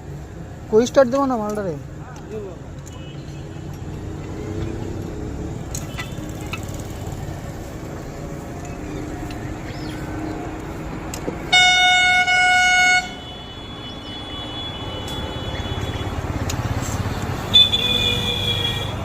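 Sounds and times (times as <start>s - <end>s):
street noise rumble: 0.0s - 19.0s
vehicle horn blaring: 11.5s - 16.2s, 17.5s - 19.0s.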